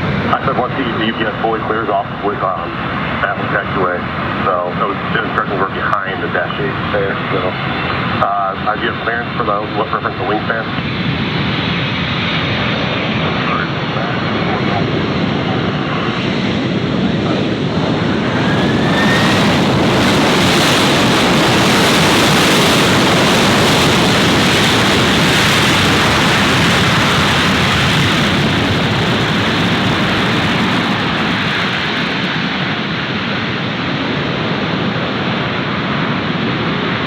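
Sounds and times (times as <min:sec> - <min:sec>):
jet engine roar: 0:00.0 - 0:37.0.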